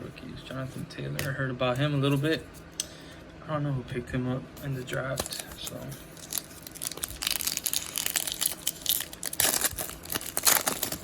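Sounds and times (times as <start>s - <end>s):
foil wrapper tearing and crinkling: 5.1s - 11.0s.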